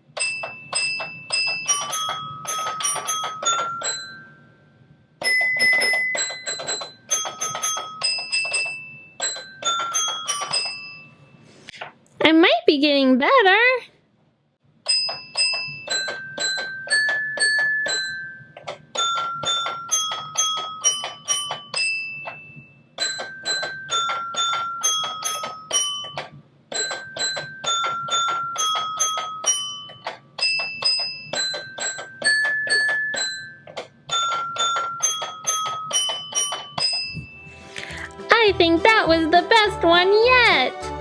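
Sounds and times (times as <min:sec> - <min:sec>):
toy xylophone notes: 0:00.1 - 0:04.5, 0:05.2 - 0:11.2, 0:14.9 - 0:40.8.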